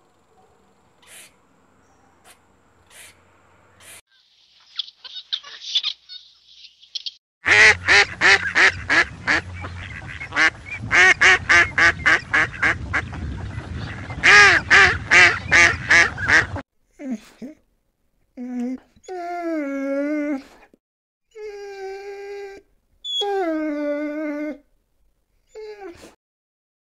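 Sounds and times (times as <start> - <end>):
duck quacking: 1.0 - 1.4, 2.9 - 3.2, 7.4 - 16.6.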